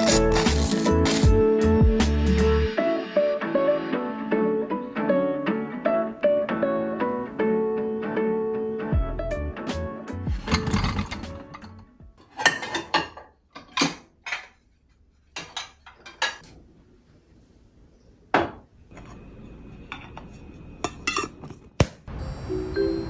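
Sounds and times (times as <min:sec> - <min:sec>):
dishes and cutlery clinking: 0:10.3 - 0:14.7, 0:15.3 - 0:16.6, 0:19.9 - 0:21.7.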